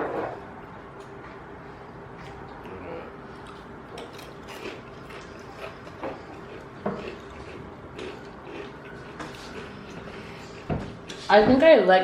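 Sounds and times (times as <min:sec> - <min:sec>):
chewing crisp food: 0:02.1 - 0:11.3.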